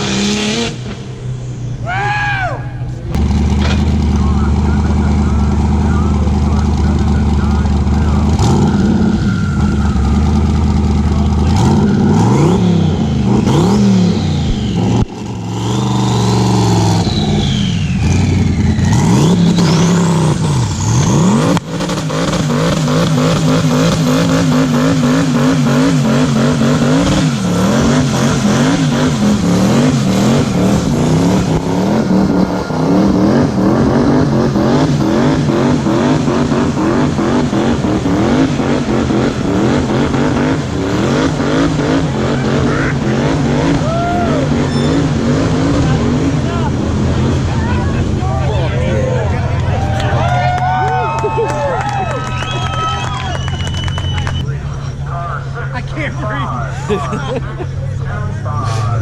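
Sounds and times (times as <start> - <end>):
car engine revving: 0.0 - 59.0
high gliding squeal: 8.0 - 21.4, 43.8 - 45.7.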